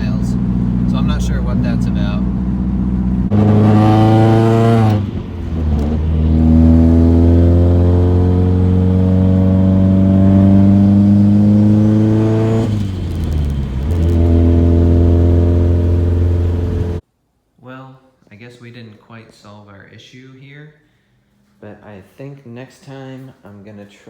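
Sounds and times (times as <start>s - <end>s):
car engine accelerating through gears: 0.0s - 17.0s.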